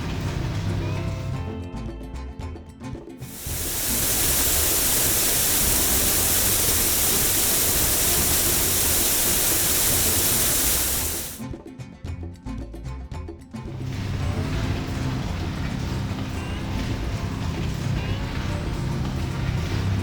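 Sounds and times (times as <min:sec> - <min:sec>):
water jet spraying: 0:03.3 - 0:11.4.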